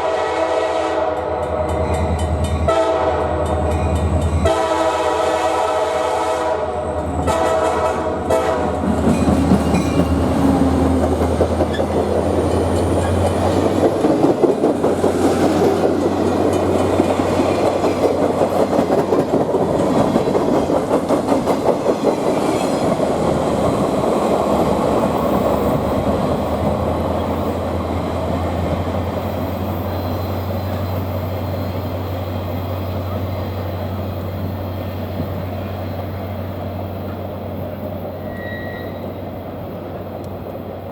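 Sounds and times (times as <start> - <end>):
locomotive air horn: 0.0 - 1.3, 2.7 - 3.5, 4.4 - 8.9
train wheels clattering over rail joints: 8.8 - 29.6.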